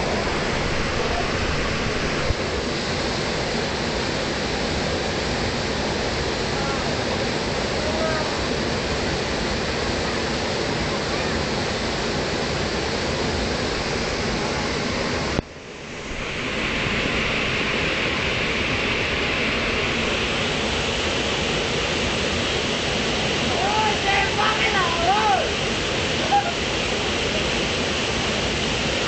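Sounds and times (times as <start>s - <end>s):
waterfall pouring: 0.0s - 8.5s.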